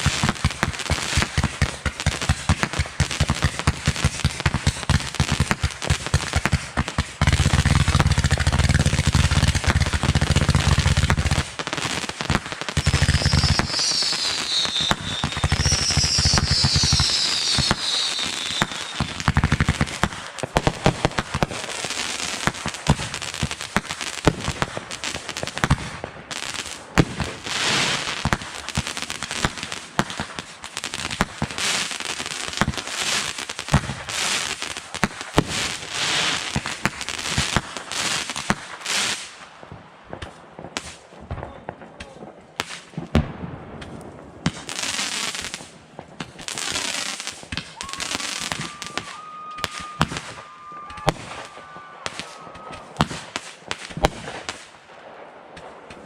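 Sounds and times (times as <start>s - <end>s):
fireworks bangs and crackling: 0.0s - 56.0s
thin whistle-like tone: 13.3s - 19.0s.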